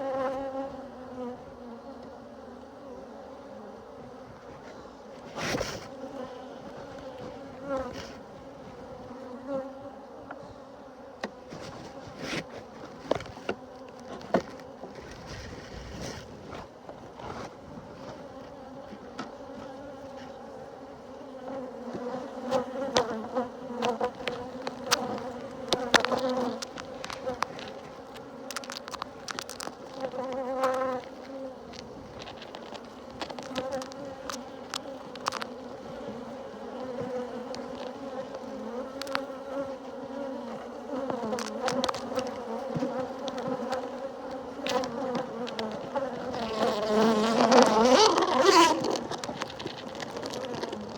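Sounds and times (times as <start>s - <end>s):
honeybees buzzing: 0.0s - 15.4s, 16.6s - 50.9s
rustling: 4.3s - 9.2s, 21.8s - 50.9s.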